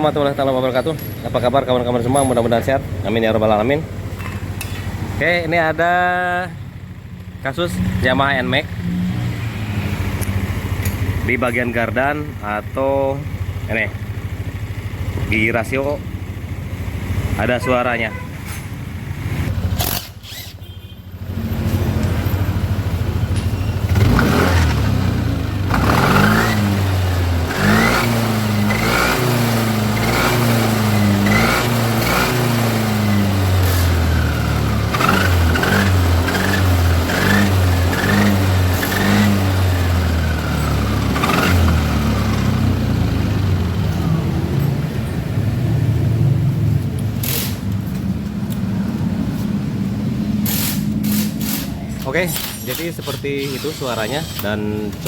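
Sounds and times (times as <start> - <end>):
scooter engine revving: 7.8 - 17.7, 18.7 - 55.0
gear whine: 19.8 - 20.7.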